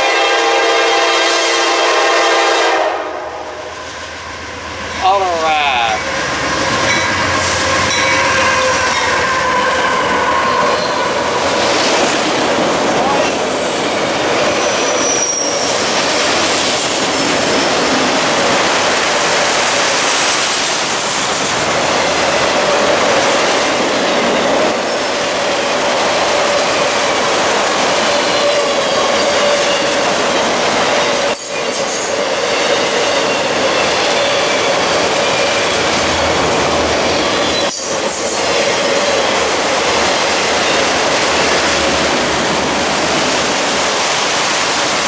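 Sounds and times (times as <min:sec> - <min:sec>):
steel wheels clattering on rail: 0:06.0 - 0:45.0
wheel squeal: 0:14.8 - 0:16.0.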